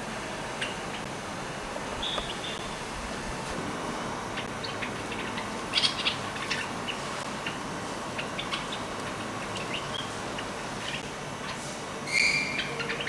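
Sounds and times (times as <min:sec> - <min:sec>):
steady background hiss: 0:00.0 - 0:13.0
bird chirping calls: 0:02.0 - 0:02.9, 0:04.3 - 0:13.0.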